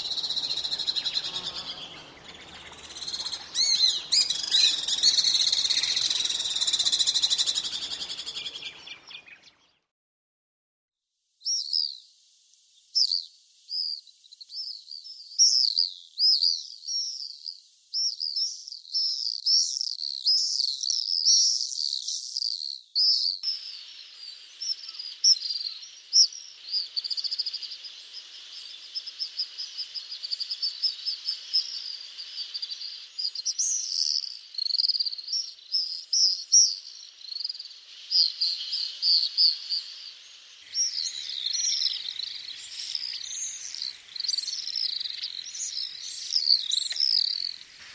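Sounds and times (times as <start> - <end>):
swifts screaming: 0.0 - 9.2, 40.6 - 47.9.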